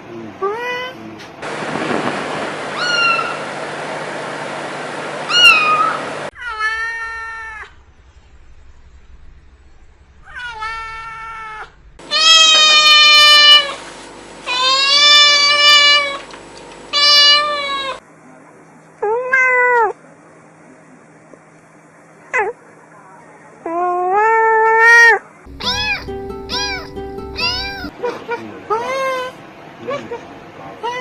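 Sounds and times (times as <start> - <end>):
cat meowing: 2.8 - 3.4, 5.3 - 7.7, 10.3 - 13.8, 14.5 - 16.2, 16.9 - 18.0, 23.7 - 27.9.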